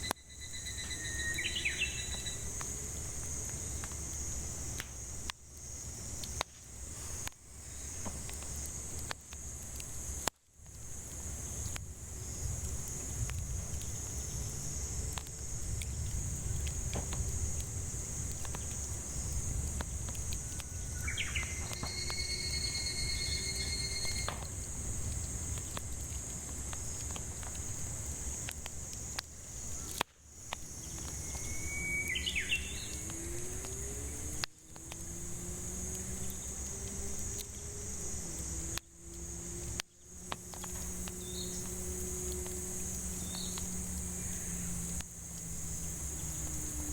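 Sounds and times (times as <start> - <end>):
bird whistled calls: 0.0 - 2.5, 21.0 - 24.3, 31.2 - 33.1
cicadas droning: 0.0 - 46.9
wood fire crackling: 0.0 - 46.9.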